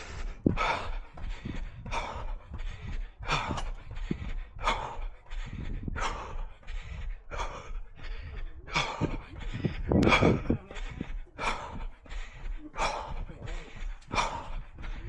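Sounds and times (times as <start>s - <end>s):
heavy rhythmic breathing: 0.0s - 15.0s.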